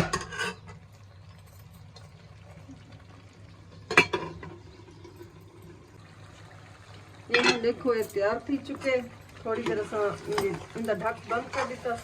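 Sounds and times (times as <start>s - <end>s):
metal spoon clattering on pot: 0.0s - 0.8s, 7.3s - 7.7s, 8.6s - 12.0s
faint simmering: 0.0s - 12.0s.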